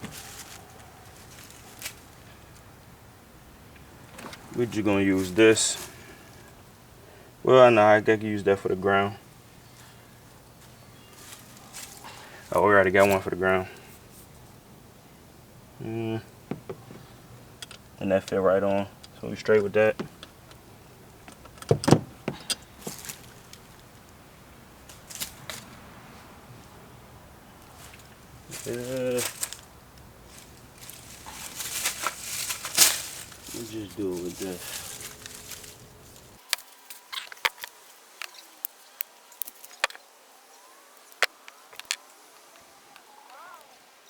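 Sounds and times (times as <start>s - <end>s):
hand tools clicking and snapping: 30.3s - 38.8s.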